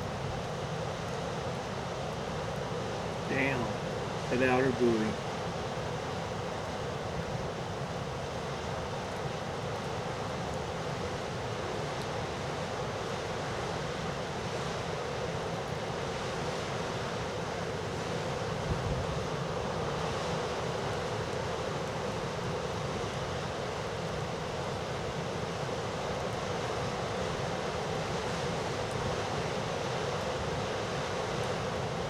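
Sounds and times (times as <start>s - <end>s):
low wind gust: 0.0s - 32.0s
breaking waves rushing: 3.3s - 5.2s.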